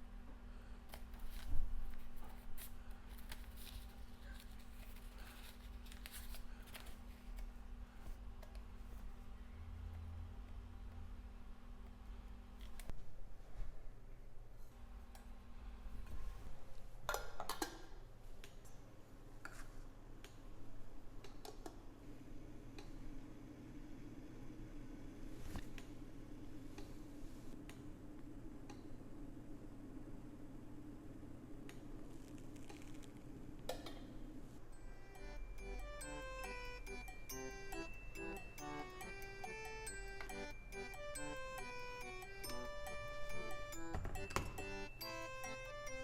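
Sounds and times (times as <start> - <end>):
faint low hum: 0.0 - 46.0.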